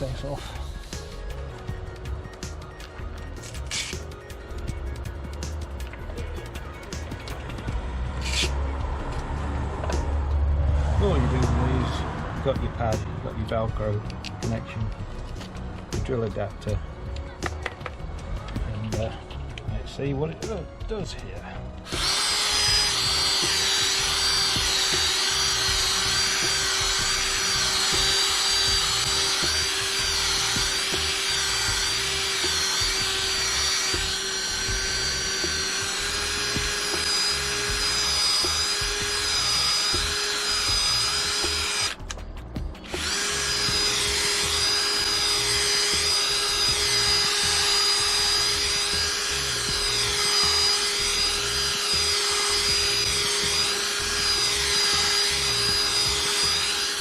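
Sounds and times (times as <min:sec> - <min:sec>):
electric drill motor whine: 0:21.8 - 0:42.0, 0:42.8 - 0:57.0.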